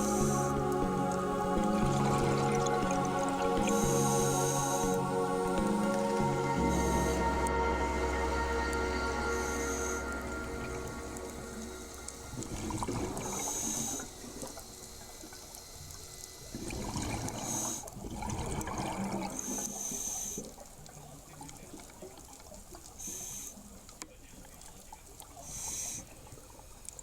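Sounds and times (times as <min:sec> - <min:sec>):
exhaust bubbles rushing: 0:00.0 - 0:14.8
regulator hiss on inhale: 0:23.0 - 0:23.6, 0:25.4 - 0:26.2.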